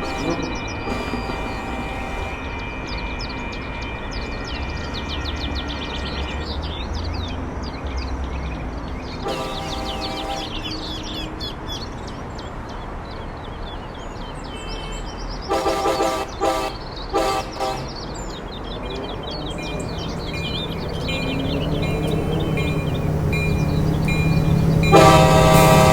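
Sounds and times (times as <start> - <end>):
train horn blasts: 0.0 - 5.5, 9.2 - 11.1, 15.5 - 18.1, 19.6 - 25.9
train rumbling past: 0.0 - 6.9, 9.2 - 11.9, 15.5 - 25.9
birds chirping: 0.0 - 25.9.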